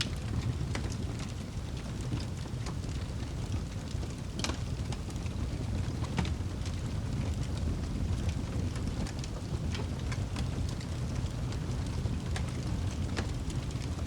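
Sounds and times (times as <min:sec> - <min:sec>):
fire crackling and popping: 0:00.0 - 0:14.0
low rumble of flames: 0:00.0 - 0:14.0.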